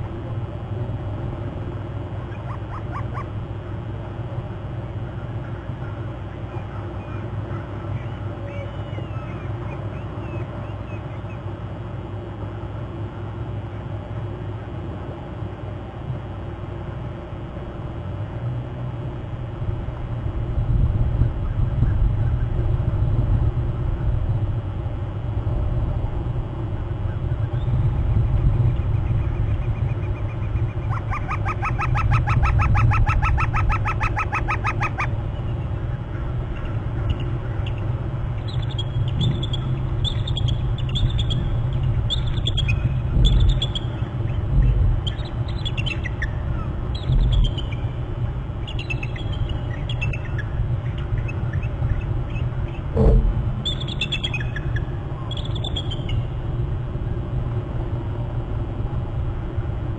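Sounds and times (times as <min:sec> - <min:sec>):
eagle calling: 0:02.1 - 0:03.5, 0:05.2 - 0:11.5, 0:28.7 - 0:48.0, 0:48.6 - 0:56.4
low rumble: 0:50.5 - 0:59.5.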